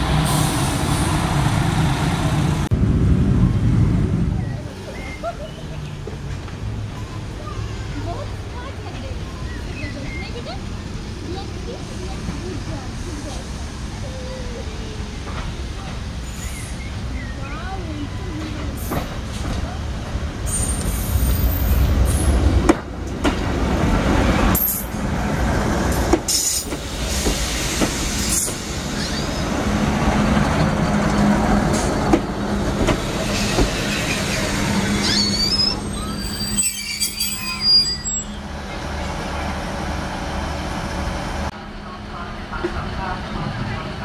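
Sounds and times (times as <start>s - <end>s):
train wheels rumbling: 0.0s - 44.0s
high wheel squeals: 33.3s - 38.5s.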